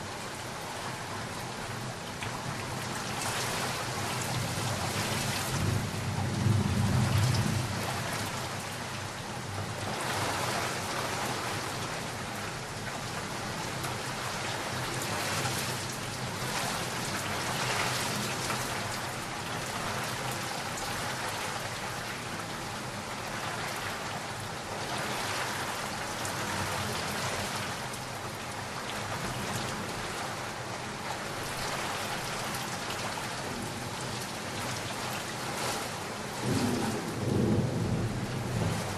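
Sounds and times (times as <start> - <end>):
heavy rain falling: 0.0 - 38.9
low rumble of thunder: 4.4 - 8.6, 36.3 - 38.9.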